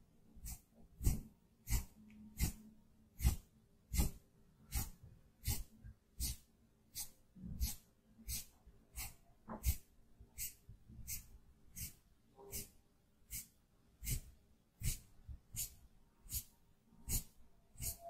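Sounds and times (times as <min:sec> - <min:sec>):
makeup brush swishing strokes: 0:00.4 - 0:02.6, 0:03.2 - 0:09.8, 0:10.4 - 0:18.0.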